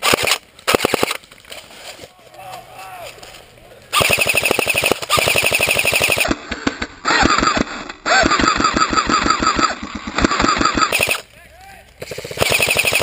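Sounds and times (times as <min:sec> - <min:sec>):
airsoft guns firing full auto: 0:00.0 - 0:01.2, 0:03.9 - 0:06.4, 0:07.1 - 0:11.2, 0:12.0 - 0:13.0.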